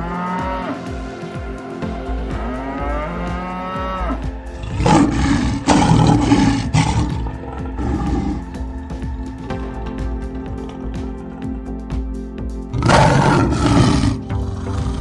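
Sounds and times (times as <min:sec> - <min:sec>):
cow mooing: 0:04.0 - 0:08.4, 0:12.8 - 0:15.0.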